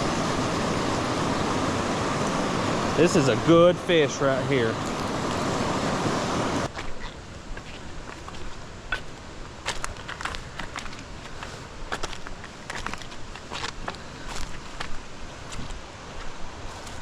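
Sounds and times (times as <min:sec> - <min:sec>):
waterfall rushing: 0:00.0 - 0:06.7.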